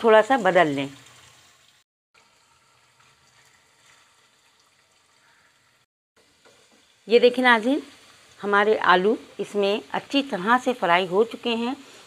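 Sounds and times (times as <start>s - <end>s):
potatoes sizzling in hot oil: 6.2s - 12.0s.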